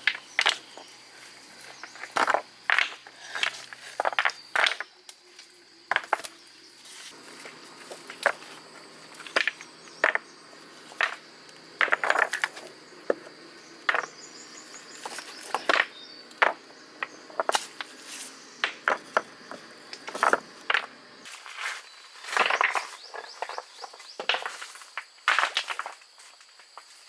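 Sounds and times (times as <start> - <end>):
hard objects clicking and knocking: 1.8 - 4.9, 9.2 - 10.3, 11.8 - 14.2, 18.6 - 21.0.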